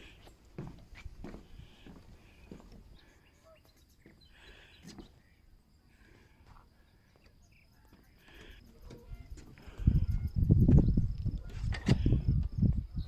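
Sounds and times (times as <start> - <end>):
faint bird chirps: 1.7 - 5.9, 6.8 - 11.2.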